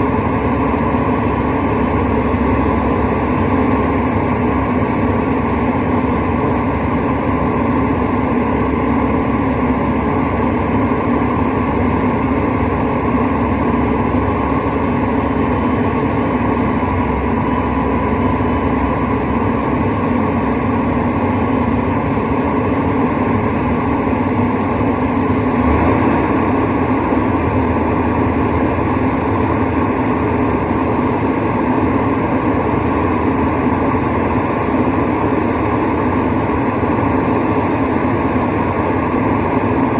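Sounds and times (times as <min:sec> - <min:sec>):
air conditioning unit droning: 0:00.0 - 0:39.9.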